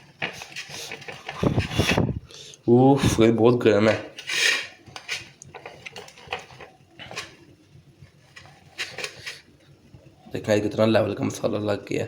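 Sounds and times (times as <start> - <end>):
hands rubbing corn cob: 0.2 - 2.1, 8.3 - 9.5.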